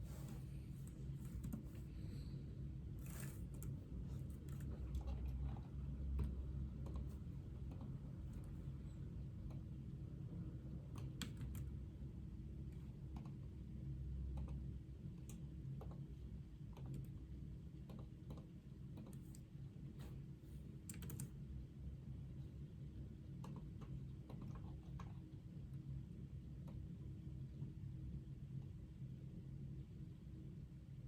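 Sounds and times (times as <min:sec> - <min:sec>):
low room hum: 0:00.0 - 0:31.0
computer keyboard typing: 0:01.2 - 0:01.8, 0:20.9 - 0:21.3.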